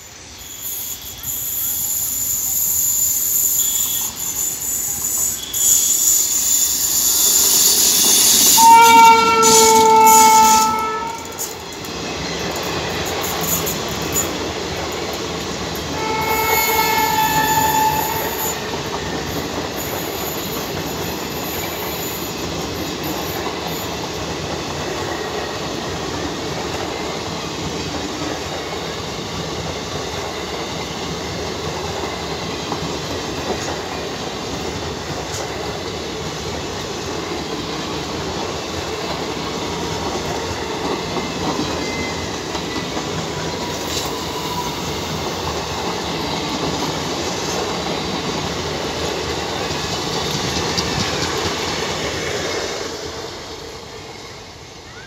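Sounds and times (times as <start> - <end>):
electric locomotive passing: 0.0 - 55.0
train coaches rolling: 0.0 - 55.0
train horn blasts: 8.3 - 11.6, 15.9 - 18.7.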